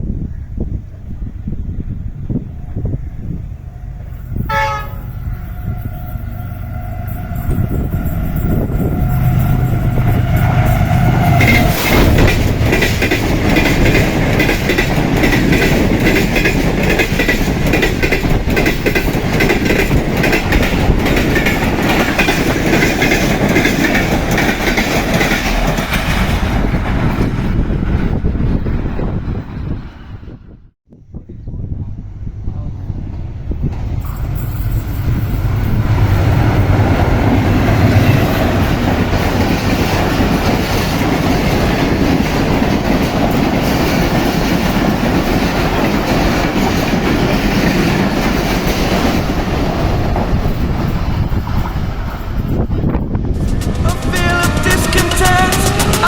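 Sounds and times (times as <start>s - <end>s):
locomotive horn chord: 4.4s - 7.8s, 53.9s - 56.0s
train wheels clattering over rail joints: 7.2s - 28.7s, 33.6s - 56.0s.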